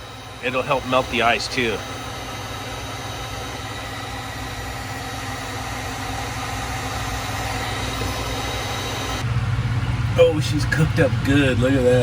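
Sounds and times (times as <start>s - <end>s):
heat gun whirring: 0.0s - 9.2s.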